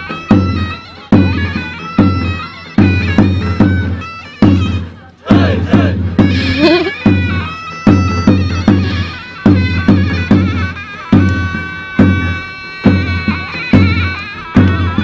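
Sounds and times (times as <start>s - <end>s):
heavy drum strokes: 0.0s - 15.0s
shrill reed melody: 0.0s - 15.0s.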